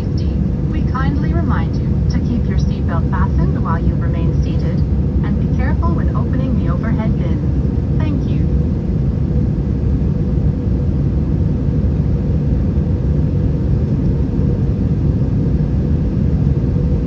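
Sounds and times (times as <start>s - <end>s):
aircraft cabin rumble: 0.0s - 17.0s
faint steady hum: 0.0s - 17.0s.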